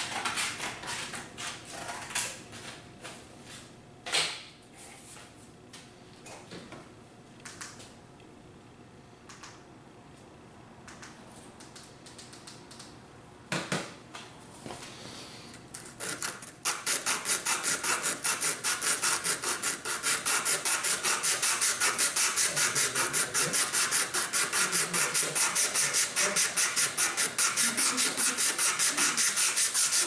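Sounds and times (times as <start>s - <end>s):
sandpaper rubbing on wood: 16.0s - 30.0s.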